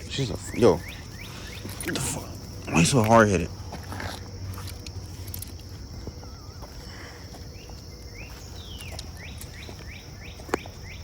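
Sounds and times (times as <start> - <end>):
rising bird chirps: 0.0 - 2.4, 5.9 - 11.0
high insect drone: 0.0 - 11.0.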